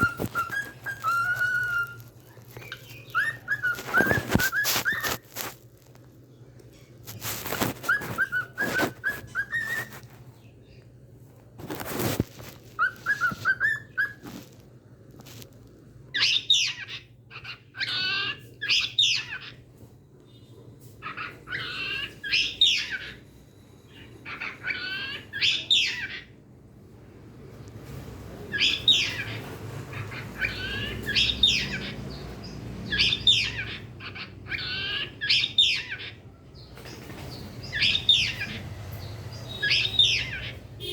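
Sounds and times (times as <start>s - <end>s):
cockatiel chirping: 0.0s - 5.5s, 7.4s - 10.1s, 12.8s - 14.4s, 16.1s - 19.6s, 21.0s - 23.2s, 23.9s - 26.3s, 28.5s - 36.2s, 37.6s - 38.6s, 39.5s - 40.9s.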